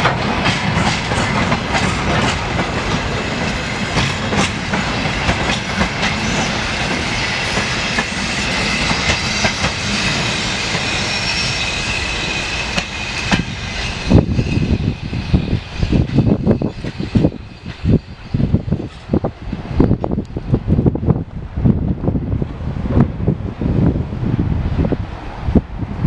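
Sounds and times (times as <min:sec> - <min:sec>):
train wheels clattering on rails: 0:00.0 - 0:20.6
wheels squealing: 0:06.1 - 0:19.2.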